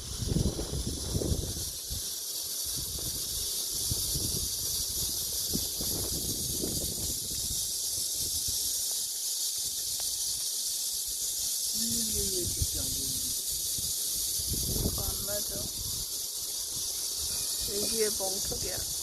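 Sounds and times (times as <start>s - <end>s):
wind rumble on microphone: 0.0s - 8.8s, 11.7s - 16.1s, 17.6s - 19.0s
insect chorus hissing: 0.0s - 19.0s.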